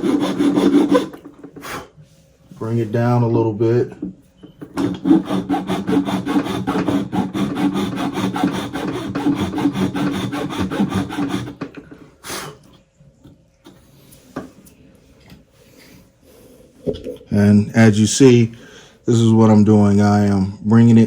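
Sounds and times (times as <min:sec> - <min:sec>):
hand file rasping on wood: 0:00.0 - 0:01.9, 0:04.8 - 0:11.8
single file scrapes: 0:00.0 - 0:01.9.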